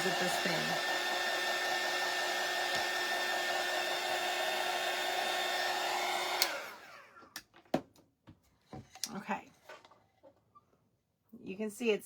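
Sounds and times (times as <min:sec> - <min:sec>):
hot-air blower whining: 0:00.0 - 0:07.3.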